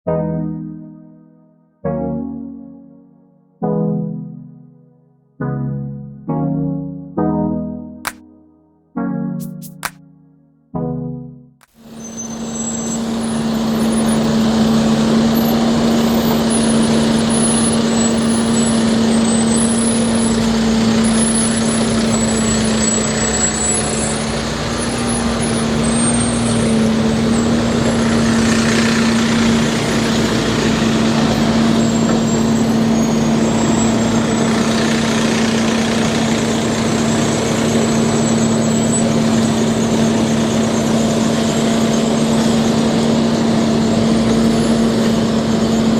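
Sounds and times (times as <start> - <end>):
heavy vehicle engine droning: 11.8 - 45.9.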